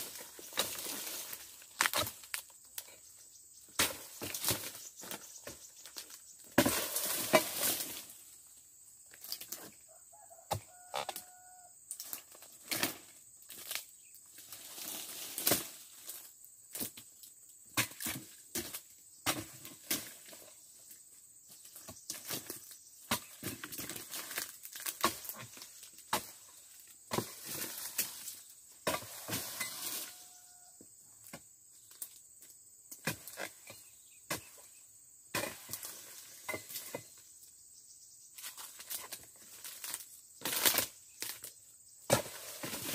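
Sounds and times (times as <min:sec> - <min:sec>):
fronds rustling as they fall: 0:00.0 - 0:02.9, 0:03.8 - 0:08.4, 0:10.8 - 0:16.9, 0:22.1 - 0:26.0, 0:38.4 - 0:41.5.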